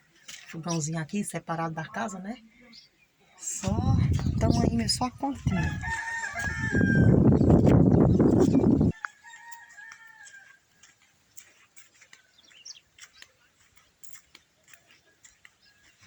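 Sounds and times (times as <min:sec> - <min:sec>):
low rumbling on microphone: 0:03.6 - 0:08.9
rooster crowing: 0:05.4 - 0:07.6, 0:08.8 - 0:10.6
faint chirps and ticks: 0:09.8 - 0:16.0.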